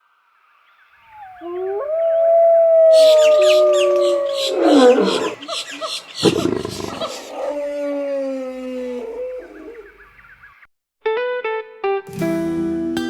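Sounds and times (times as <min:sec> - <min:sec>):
animal howl sliding down: 0:01.1 - 0:05.6, 0:06.2 - 0:09.9
fast chattering animal call: 0:02.9 - 0:07.6.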